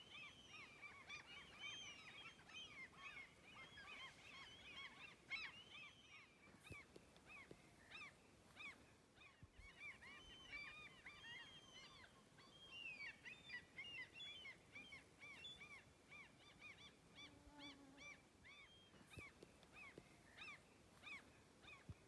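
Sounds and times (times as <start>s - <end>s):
distant flock of birds calling: 0.0s - 22.0s.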